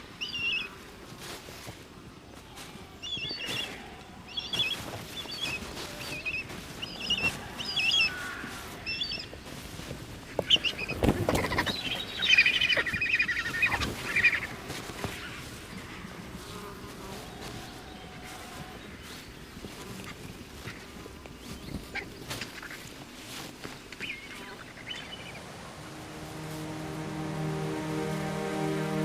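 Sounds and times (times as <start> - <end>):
wings flapping and scuffling: 1.0 - 28.2
vultures squealing: 10.4 - 15.4.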